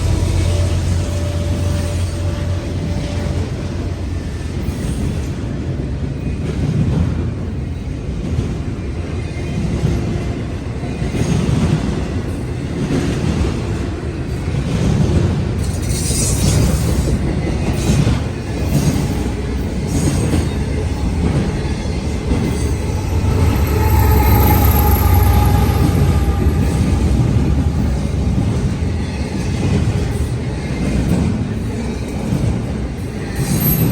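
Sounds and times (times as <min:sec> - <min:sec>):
train cars rumbling past: 0:00.0 - 0:33.9
high wheel squeal: 0:19.9 - 0:29.8.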